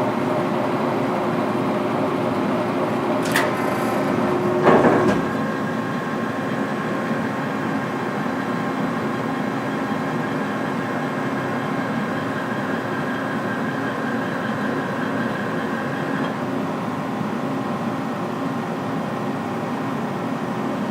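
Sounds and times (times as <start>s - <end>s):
lathe humming and whining: 0.0s - 20.9s
machine clunk: 3.2s - 5.6s.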